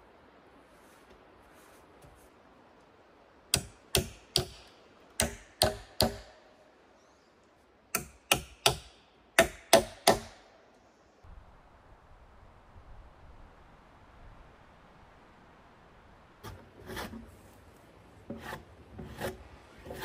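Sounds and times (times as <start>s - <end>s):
tool striking wood: 3.5s - 4.6s, 5.2s - 6.3s, 8.0s - 10.4s.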